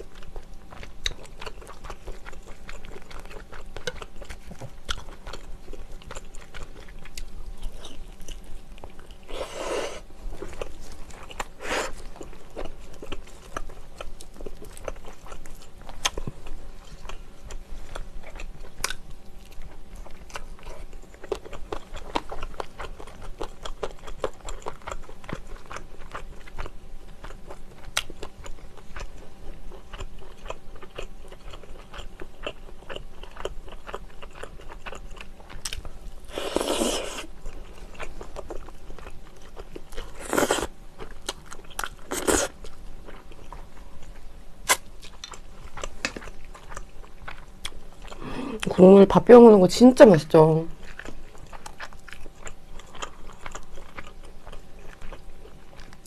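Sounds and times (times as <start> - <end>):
chewing and biting: 0.0 - 48.7, 50.7 - 56.0
wet mouth clicks and crunches: 44.6 - 46.8.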